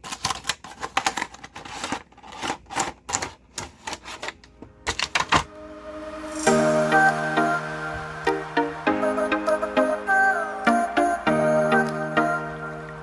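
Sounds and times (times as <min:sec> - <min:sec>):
plastic packaging crackling: 0:00.0 - 0:05.5
music: 0:05.4 - 0:13.0.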